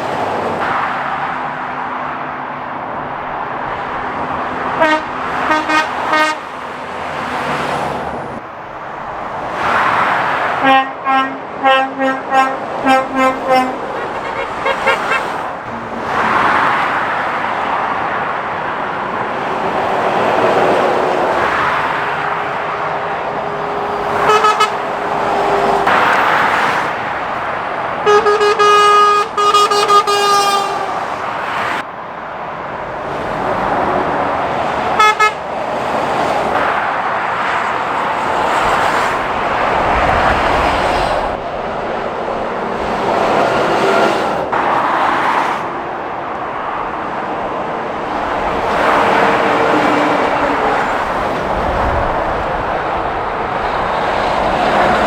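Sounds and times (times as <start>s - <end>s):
traffic passing at speed: 0.0s - 55.0s
vehicle horn: 4.7s - 6.6s, 10.6s - 16.8s, 21.7s - 26.7s, 28.0s - 31.7s, 34.9s - 35.4s.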